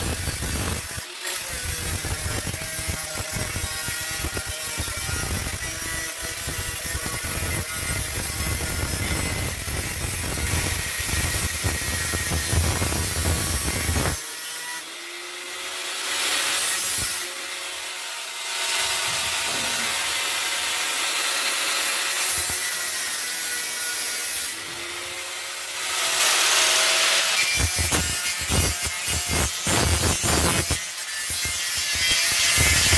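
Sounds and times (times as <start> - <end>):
abrasive scraping on rusty steel: 18.7 - 21.0.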